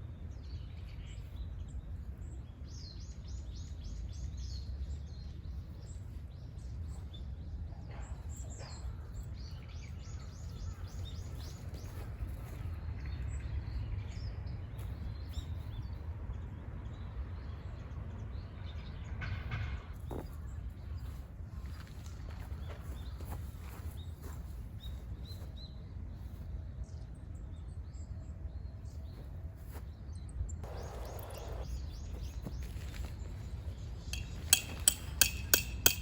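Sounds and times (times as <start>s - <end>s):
small birds chirping: 0.0s - 19.1s, 20.0s - 36.0s
steady low rumble: 24.6s - 36.0s.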